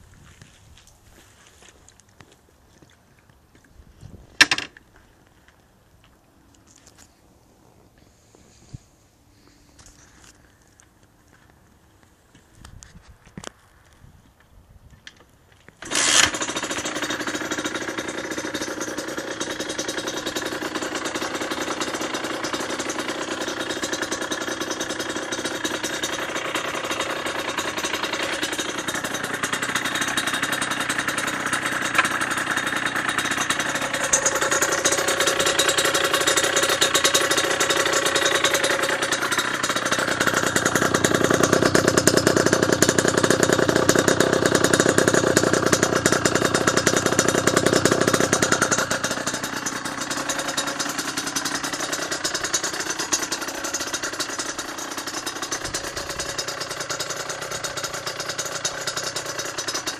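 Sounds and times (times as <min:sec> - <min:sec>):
two-stroke engine running: 0:15.8 - 0:59.9.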